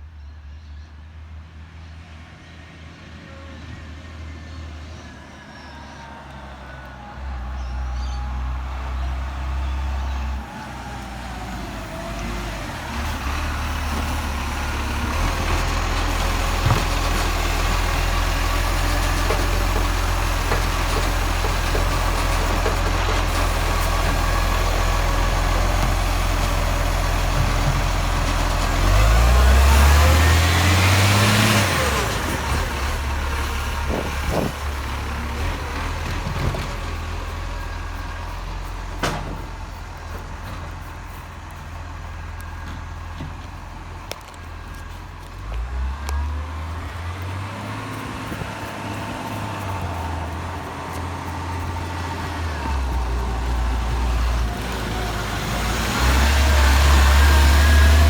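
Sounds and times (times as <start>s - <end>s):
garbage truck engine running: 6.0s - 58.0s.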